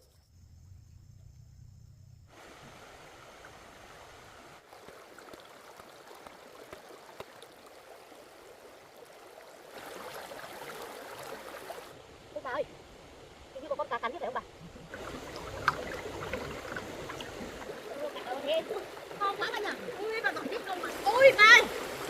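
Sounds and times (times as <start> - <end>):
low hum: 0.0 - 2.3
water flowing and trickling: 2.3 - 22.0.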